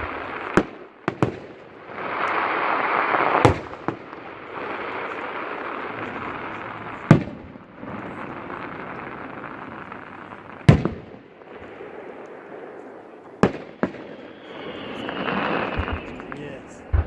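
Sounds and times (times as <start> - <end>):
firework booms: 0.0 - 17.0
fireworks crackling: 0.0 - 17.0.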